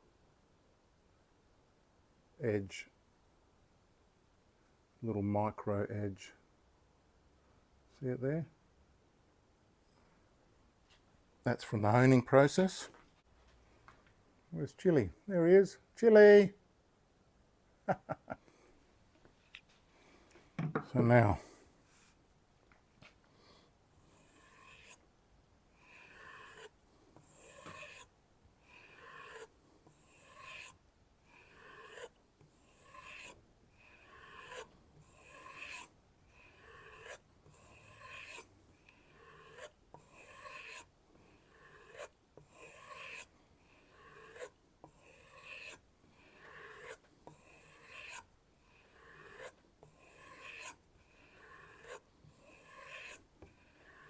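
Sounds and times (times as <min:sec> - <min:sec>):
knife rubbing on leather strop: 0:25.9 - 0:28.1, 0:28.7 - 0:38.5, 0:39.2 - 0:40.9, 0:41.6 - 0:43.3, 0:43.9 - 0:48.3, 0:48.9 - 0:54.0.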